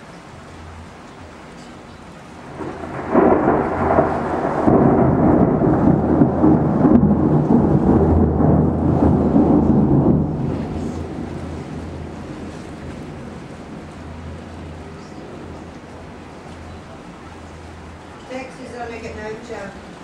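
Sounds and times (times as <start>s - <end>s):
thunder clap and rumble: 2.4s - 18.1s.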